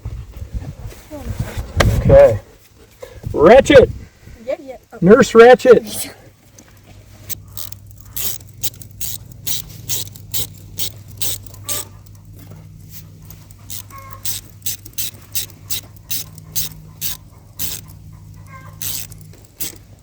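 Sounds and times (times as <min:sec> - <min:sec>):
socket ratchet clicking: 0:07.3 - 0:12.2, 0:13.3 - 0:20.0.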